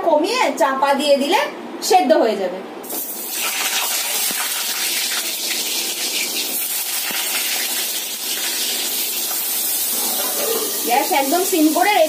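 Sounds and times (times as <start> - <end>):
vegetables frying in oil: 2.9 - 12.0.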